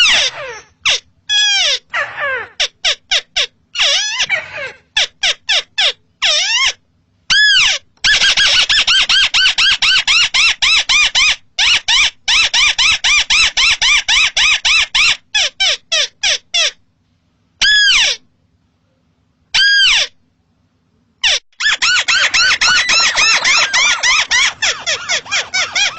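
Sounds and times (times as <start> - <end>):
crake calling: 21.2 - 25.9.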